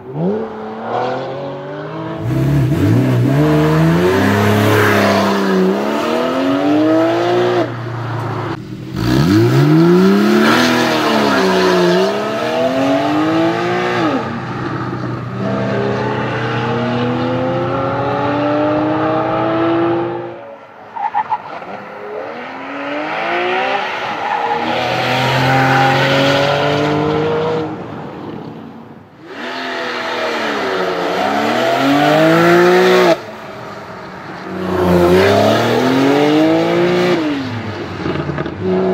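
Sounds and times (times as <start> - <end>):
car engine accelerating hard: 0.1 - 20.4.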